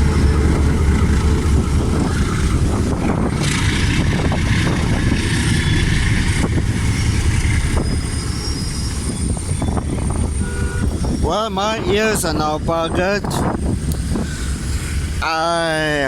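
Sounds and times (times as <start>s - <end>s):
train rumbling: 0.0s - 16.0s
thin high squeals: 6.8s - 12.3s.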